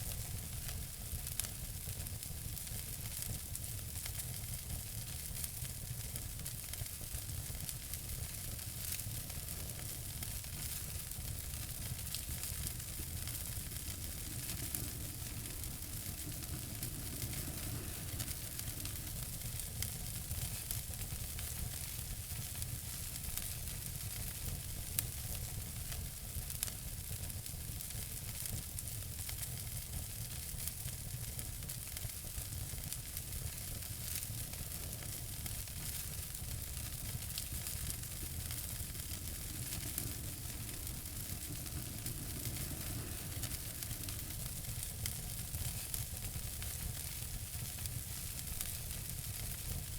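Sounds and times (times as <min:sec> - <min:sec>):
wood fire crackling: 0:00.0 - 0:49.9
low rumble: 0:10.5 - 0:20.9, 0:34.5 - 0:46.7.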